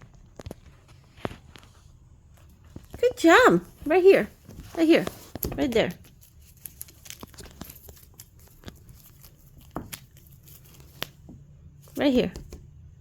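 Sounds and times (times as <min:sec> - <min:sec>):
cat toy crinkling and clicking: 0:04.3 - 0:12.6.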